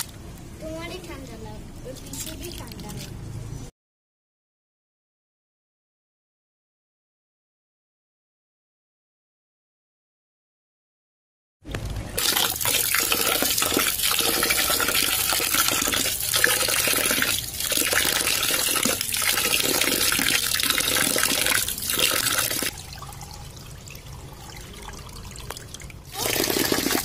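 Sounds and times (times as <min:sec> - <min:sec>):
water splashing into metal basin: 0:12.2 - 0:27.0
water trickling: 0:12.2 - 0:27.0.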